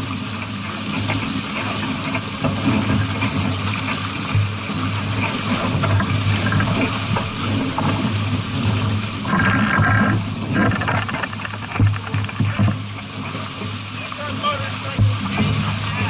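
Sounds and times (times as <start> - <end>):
water rushing and splashing: 0.0 - 16.0.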